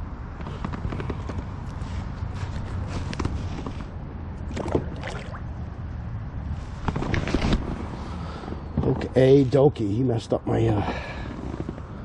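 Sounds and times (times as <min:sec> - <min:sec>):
water sloshing and splashing: 0:04.4 - 0:05.8.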